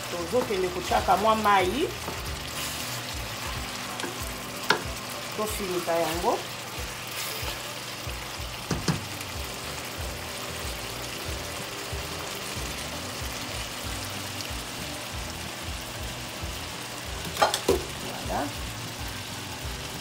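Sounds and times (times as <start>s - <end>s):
background music with even beat: 0.0s - 20.0s
food sizzling in a pan: 0.0s - 20.0s.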